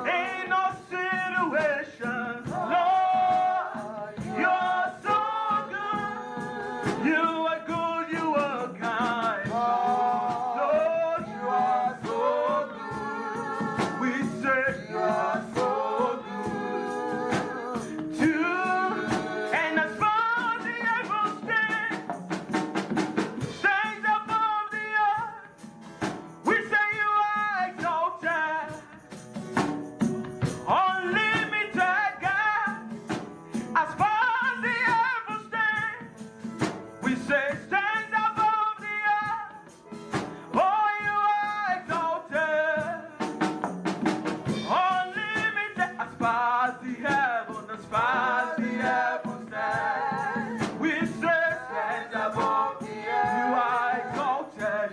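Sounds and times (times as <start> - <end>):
person singing: 0.0 - 22.0, 44.6 - 54.9
band with percussion beat: 0.0 - 54.9.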